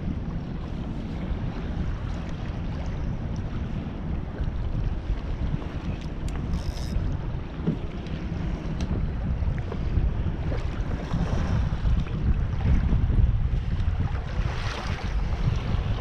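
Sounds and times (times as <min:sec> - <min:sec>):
water sloshing around kayak: 0:00.0 - 0:16.0
wind buffeting microphone: 0:00.0 - 0:16.0.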